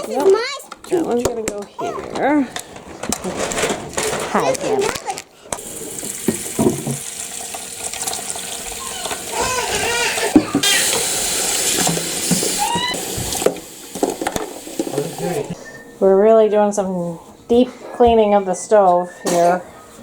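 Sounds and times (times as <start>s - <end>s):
water splashing into sink: 5.6s - 15.6s.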